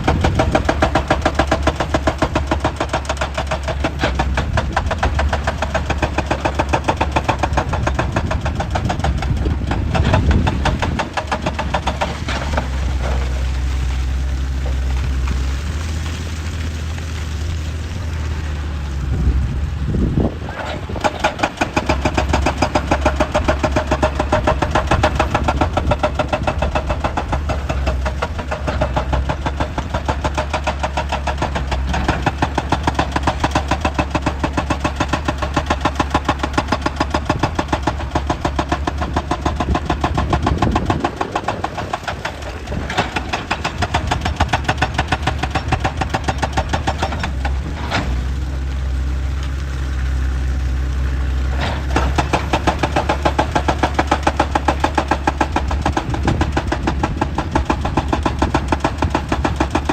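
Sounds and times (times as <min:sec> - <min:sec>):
rapid even knocking: 0:00.0 - 0:12.7, 0:21.0 - 0:47.6
excavator engine running: 0:00.0 - 0:59.9.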